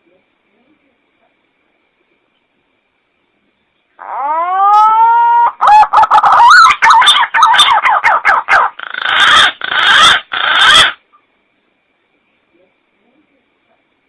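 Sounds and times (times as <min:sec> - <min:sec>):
recorded pigeon lure call: 0:04.0 - 0:11.0.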